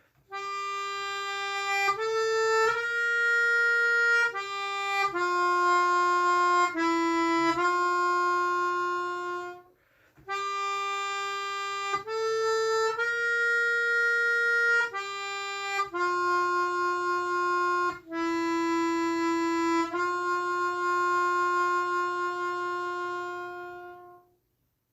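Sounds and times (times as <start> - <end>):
slow harmonica melody: 0.0 - 24.4.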